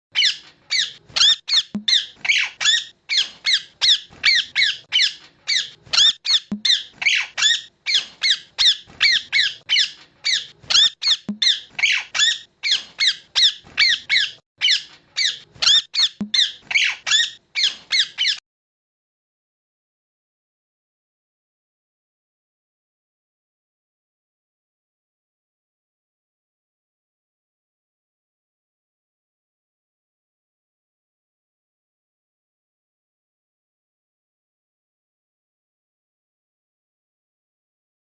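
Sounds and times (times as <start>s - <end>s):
parrot squeaking: 0.2s - 18.4s.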